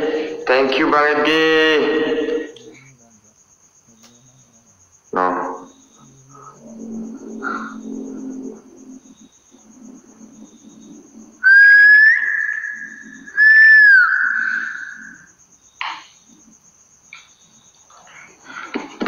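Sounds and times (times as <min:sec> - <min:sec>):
loud whistle notes: 0:11.4 - 0:15.3.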